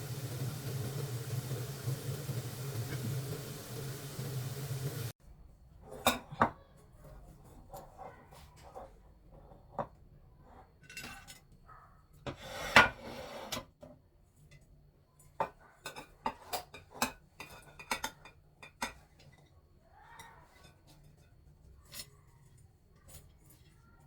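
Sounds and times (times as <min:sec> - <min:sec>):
dishes and cutlery clattering: 0:10.8 - 0:11.6, 0:15.4 - 0:19.5.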